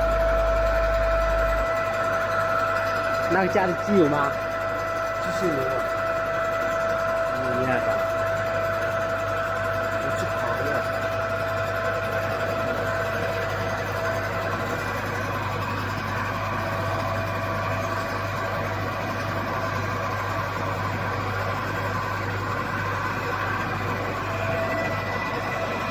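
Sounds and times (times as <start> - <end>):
steady high tones: 0.0 - 5.9
milling machine motor hum: 0.0 - 25.9.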